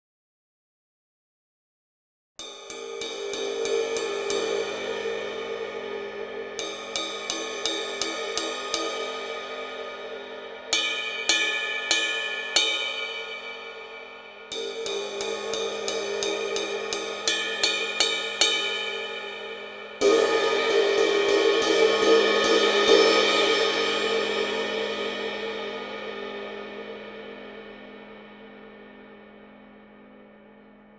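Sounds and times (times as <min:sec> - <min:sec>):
ride cymbal strokes ringing: 0:02.4 - 0:24.7.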